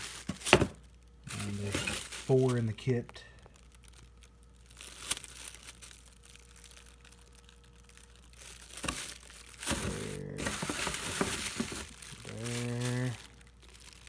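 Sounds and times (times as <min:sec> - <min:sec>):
cardboard and plastic crinkling: 0:00.0 - 0:14.0
packaging rustling: 0:00.0 - 0:14.0.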